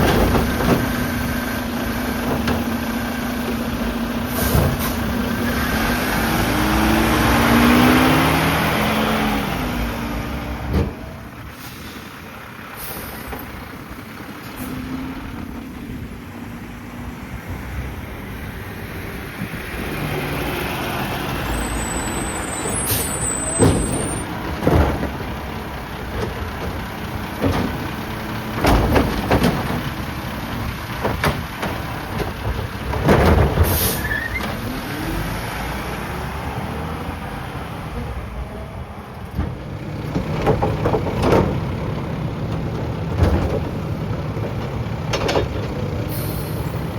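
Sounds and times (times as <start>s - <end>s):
metal clanks and bangs: 0.0s - 5.2s, 22.2s - 34.6s
diesel engine running: 0.0s - 46.9s
air brake hiss: 11.5s - 13.3s, 22.6s - 23.4s, 33.6s - 34.3s, 46.1s - 46.8s.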